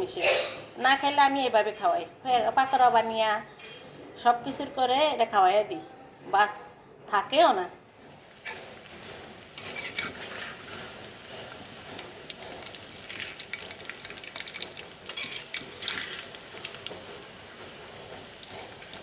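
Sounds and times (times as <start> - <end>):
food deep-frying in oil: 8.0 - 19.0.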